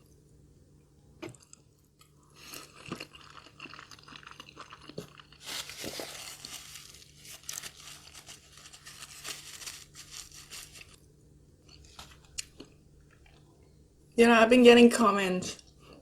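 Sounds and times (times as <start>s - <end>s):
crunchy food chewing: 1.2s - 11.0s, 11.6s - 13.5s.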